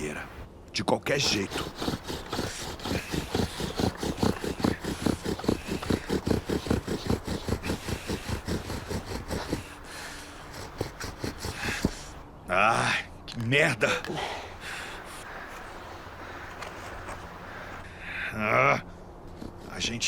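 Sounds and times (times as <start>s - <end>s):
bow drill spindle rasping: 1.2s - 12.2s.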